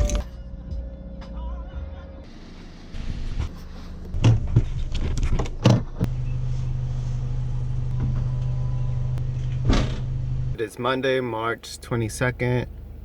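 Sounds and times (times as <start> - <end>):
car engine starting and idling: 2.3 - 13.0
clunks and rattles: 4.1 - 6.2, 9.2 - 10.2.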